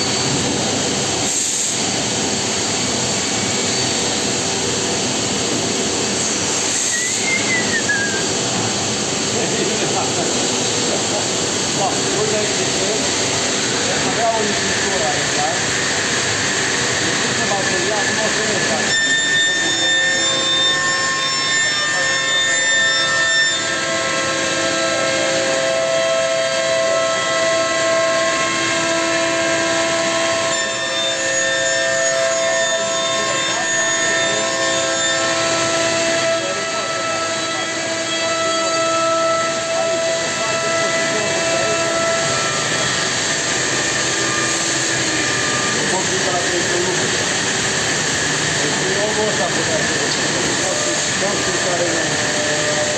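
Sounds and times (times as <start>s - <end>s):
loud even hiss: 0.0s - 18.7s
cnc router spindle whine: 0.0s - 52.9s
wood cutting noise: 0.0s - 52.9s.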